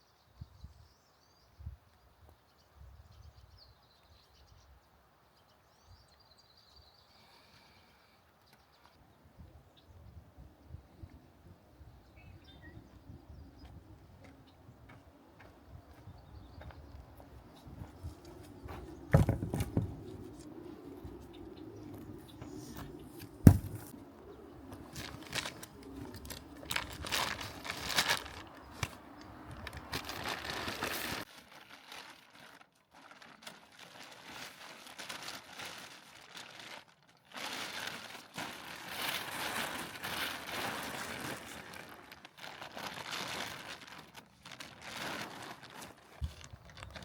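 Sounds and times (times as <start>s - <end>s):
birds chirping: 11.8s - 26.7s
handling knocks and taps: 18.7s - 20.2s, 22.8s - 23.9s
soft low thumps: 23.4s - 23.9s.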